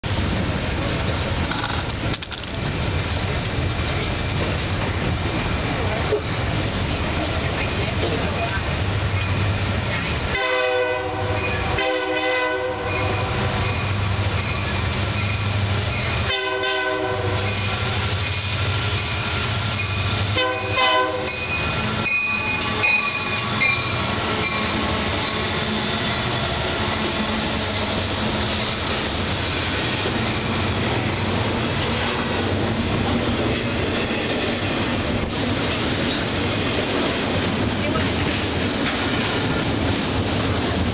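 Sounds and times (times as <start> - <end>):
train rushing past: 0.0 - 40.9
train wheel clatter and rumble: 0.0 - 40.9
locomotive air horn blasts: 10.3 - 13.6, 16.3 - 18.0, 20.4 - 21.4.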